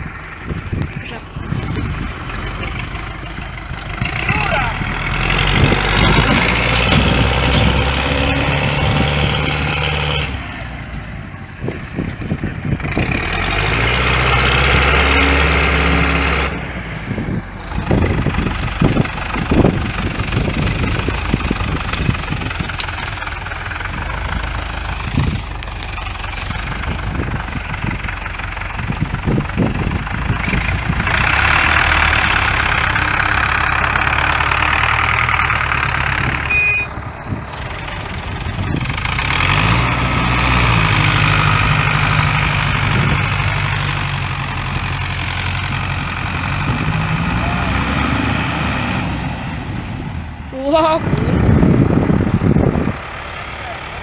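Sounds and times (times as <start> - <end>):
tractor engine revving: 0.0 - 54.0
clunks: 5.5 - 8.2.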